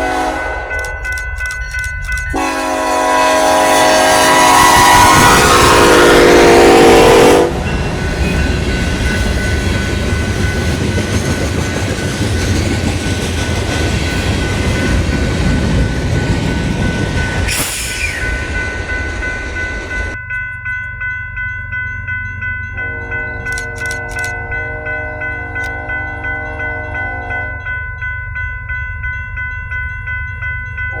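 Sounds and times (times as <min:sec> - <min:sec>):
locomotive horn chord: 0:00.0 - 0:01.0, 0:02.3 - 0:07.7, 0:22.8 - 0:27.8
rhythmic bell ringing: 0:00.0 - 0:02.6, 0:07.4 - 0:31.0
freight train passing: 0:00.0 - 0:31.0.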